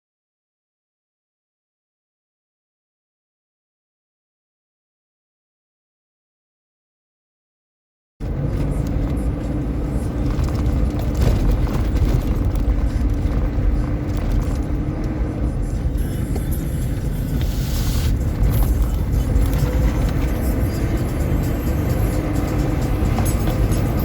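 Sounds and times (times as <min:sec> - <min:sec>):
vehicle engine rumbling: 0:08.2 - 0:24.0
music playing: 0:12.5 - 0:24.0.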